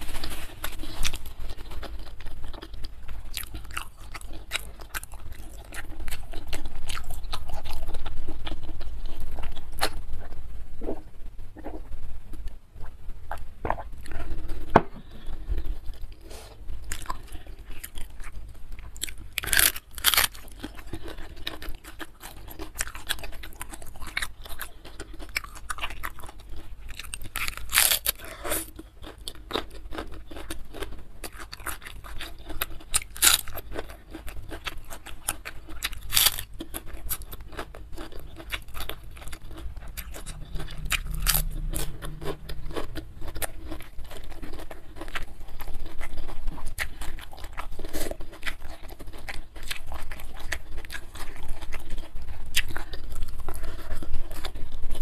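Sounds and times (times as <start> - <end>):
chewing and biting food: 0.0 - 11.0, 11.6 - 55.0
loud crunchy bites: 35.8 - 45.3.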